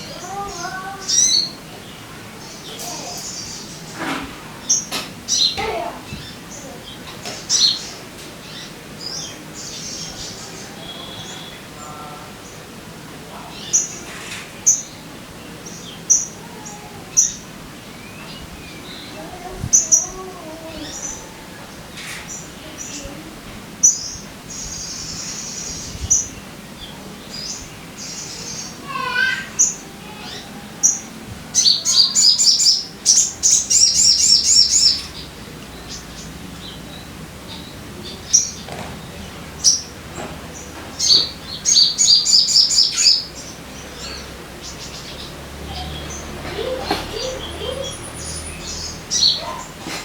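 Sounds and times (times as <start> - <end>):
bird chirping: 0.0 - 12.7, 23.8 - 50.0.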